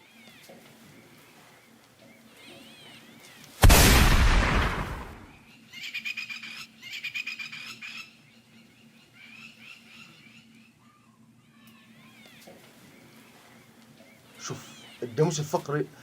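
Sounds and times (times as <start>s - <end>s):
rifle shot with echo: 3.6s - 5.3s.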